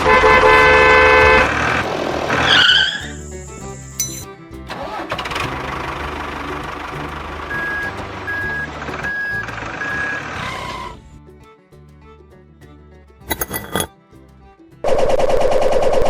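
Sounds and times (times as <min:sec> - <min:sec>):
truck engine running: 0:04.7 - 0:10.9.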